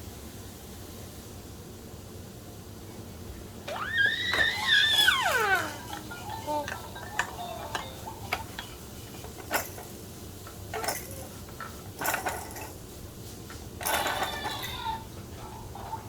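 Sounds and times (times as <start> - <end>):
plastic toy rattle: 9.3 - 10.0, 10.7 - 11.4, 12.0 - 12.8, 13.8 - 14.8.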